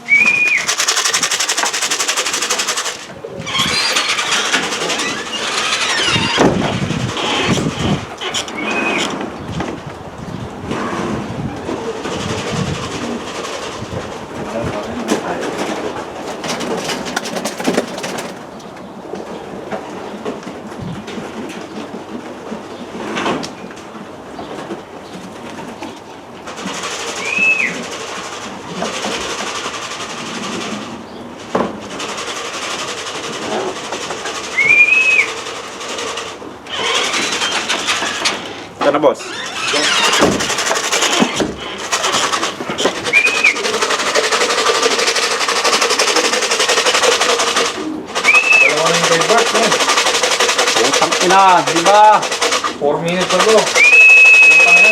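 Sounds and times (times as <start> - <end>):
whistle-like tone: 0.0 - 0.8, 27.2 - 27.8, 34.5 - 35.4, 43.0 - 43.7, 48.2 - 48.9, 53.7 - 54.9
pigeons cooing: 0.0 - 9.6, 15.5 - 18.6, 25.3 - 51.2
engine clattering: 0.2 - 9.9, 10.6 - 18.8, 24.6 - 54.9.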